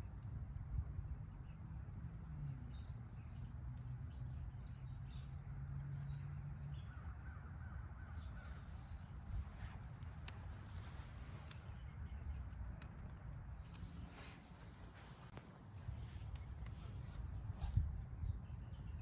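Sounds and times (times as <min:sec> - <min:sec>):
wood fire crackling: 0:08.6 - 0:17.5.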